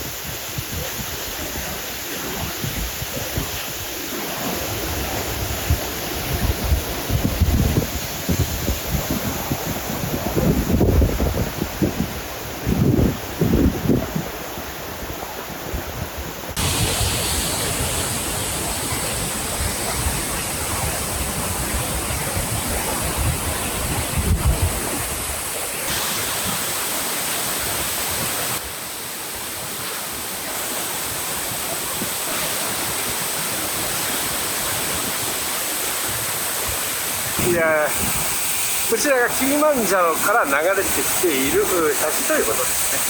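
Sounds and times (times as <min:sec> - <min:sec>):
wind buffeting microphone: 0:00.0 - 0:26.6, 0:32.9 - 0:39.5
waterfall rushing: 0:16.5 - 0:43.0.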